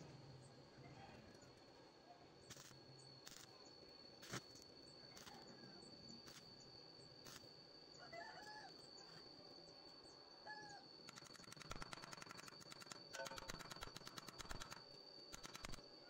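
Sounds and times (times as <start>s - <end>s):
faint steady high whine: 0.0s - 16.0s
faint clicks: 11.1s - 15.8s.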